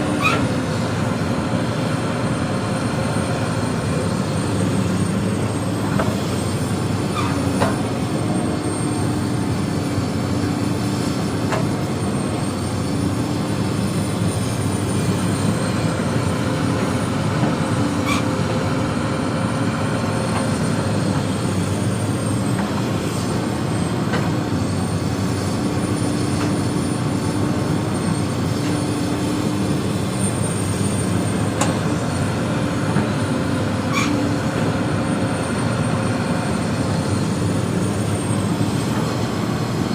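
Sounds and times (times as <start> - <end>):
excavator diesel engine under load: 0.0 - 39.9.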